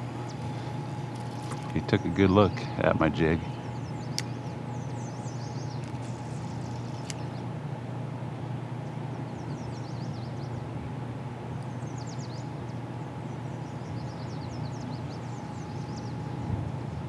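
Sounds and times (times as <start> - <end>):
birds chirping: 0.0 - 7.6, 8.7 - 10.8, 11.6 - 16.6
low background rumble: 0.0 - 17.0.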